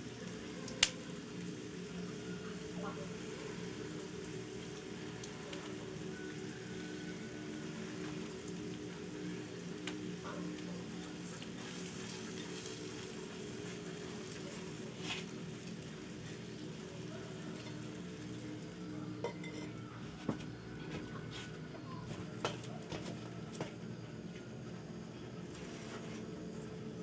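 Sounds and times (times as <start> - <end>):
food sizzling: 0.0 - 20.6
utensils clinking on pots: 19.2 - 19.9.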